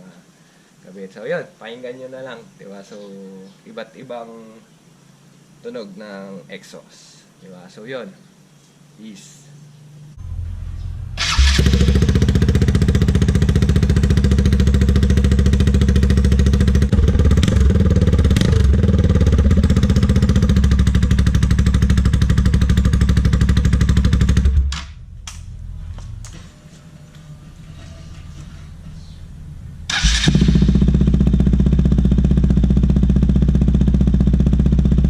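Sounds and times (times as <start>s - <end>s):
motorcycle engine exhaust note: 10.1s - 35.0s.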